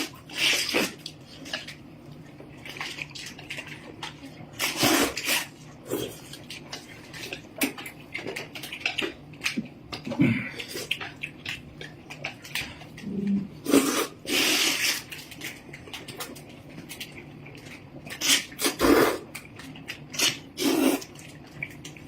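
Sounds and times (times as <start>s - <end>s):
noodles slurped: 0.0s - 1.7s, 2.7s - 7.8s, 12.6s - 15.5s, 18.1s - 19.3s, 19.9s - 21.8s
chewing: 0.0s - 22.0s.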